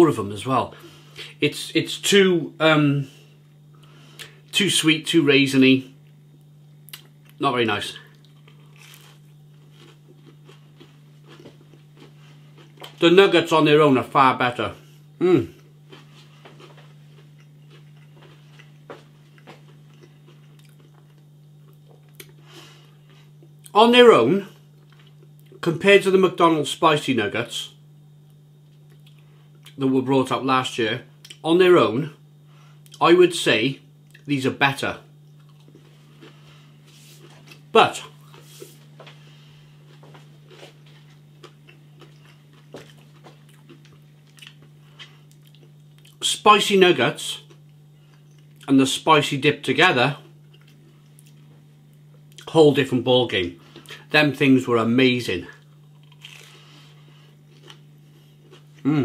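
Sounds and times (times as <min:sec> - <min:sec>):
steady low hum: 0:00.0 - 0:59.0
person chewing crispy food: 0:08.0 - 0:13.0, 0:15.3 - 0:23.6, 0:35.3 - 0:46.2, 0:50.2 - 0:52.5, 0:53.6 - 0:54.1, 0:55.6 - 0:59.0
mouth sounds: 0:15.2 - 0:15.6, 0:58.8 - 0:59.0.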